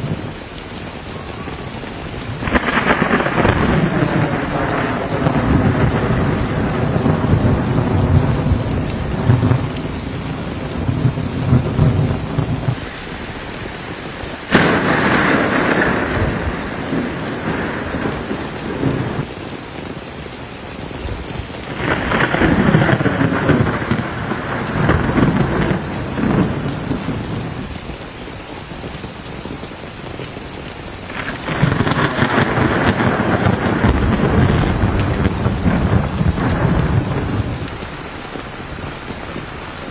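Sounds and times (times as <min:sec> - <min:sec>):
heavy rain: 0:00.0 - 0:39.9
rolling thunder: 0:01.2 - 0:19.3, 0:21.1 - 0:28.0, 0:31.1 - 0:39.9.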